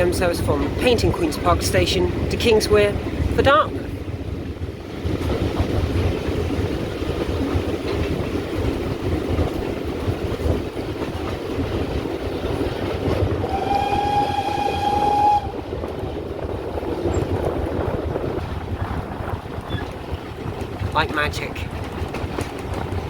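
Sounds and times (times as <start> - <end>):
steam locomotive rumble: 0.0 - 23.0
steam whistle blast: 13.4 - 15.6.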